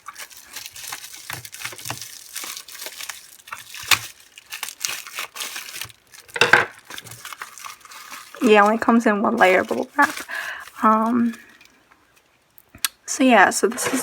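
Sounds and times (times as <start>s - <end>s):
sharp plastic crack: 0.0s - 8.8s
bubble wrap crinkling: 0.0s - 12.9s.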